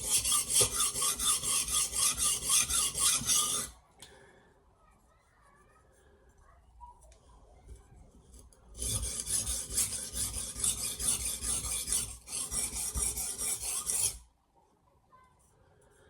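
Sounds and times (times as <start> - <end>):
knife scraping on sharpening plate: 0.0 - 3.7.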